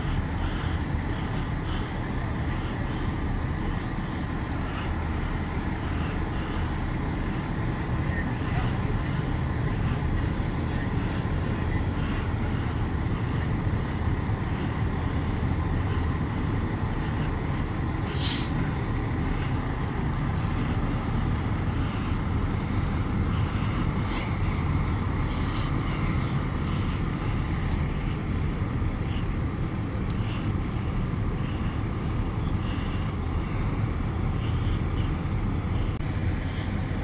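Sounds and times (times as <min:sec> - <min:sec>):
heavy engines idling: 0:00.0 - 0:37.0
air brake hiss: 0:18.0 - 0:18.7.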